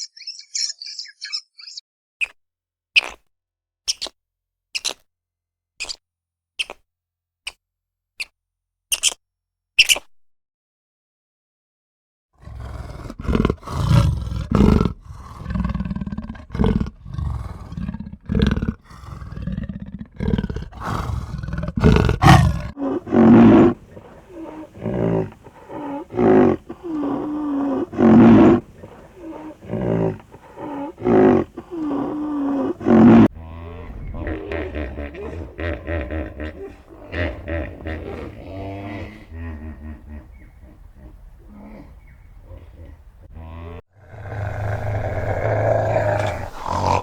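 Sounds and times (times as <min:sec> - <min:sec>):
lion roaring: 0:12.4 - 0:47.0.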